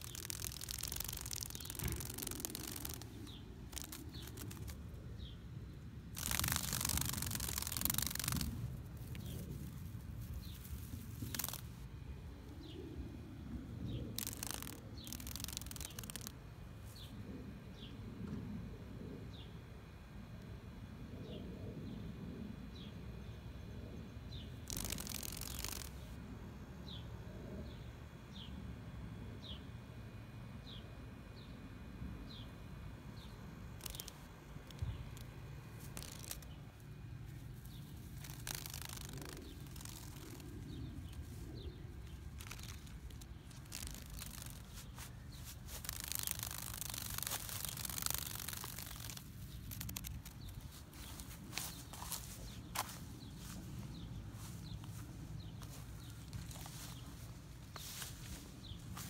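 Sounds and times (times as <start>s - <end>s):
rustling and handling noise: 0.0s - 5.4s, 6.1s - 12.8s, 14.0s - 17.2s, 24.7s - 26.2s, 33.7s - 59.0s
low outdoor rumble: 0.0s - 59.0s.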